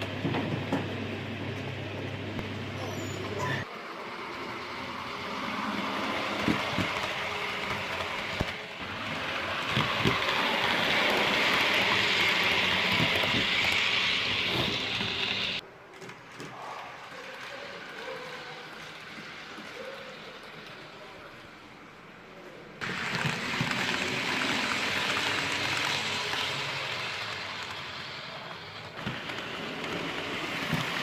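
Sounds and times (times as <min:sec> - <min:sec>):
model train whirring: 0:00.0 - 0:15.6, 0:16.2 - 0:22.0, 0:22.8 - 0:31.0
wheels clicking over rail joints: 0:04.8 - 0:20.7.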